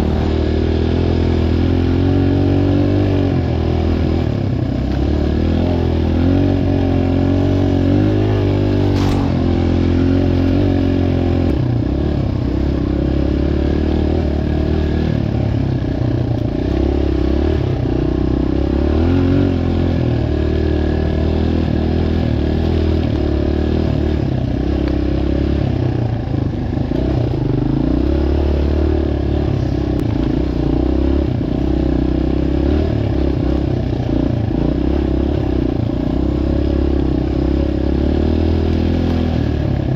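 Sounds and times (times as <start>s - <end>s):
dirt bike engine revving: 0.0s - 39.9s
sharp click: 8.8s - 9.7s.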